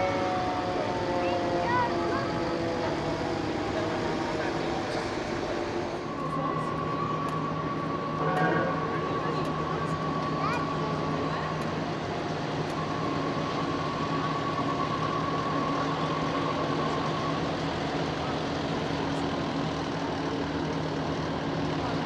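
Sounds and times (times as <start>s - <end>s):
fire truck engines idling: 0.0s - 22.0s.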